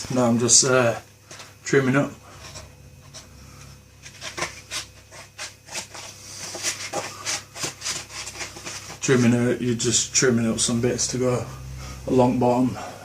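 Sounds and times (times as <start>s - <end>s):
cardboard being cut: 4.0s - 9.2s.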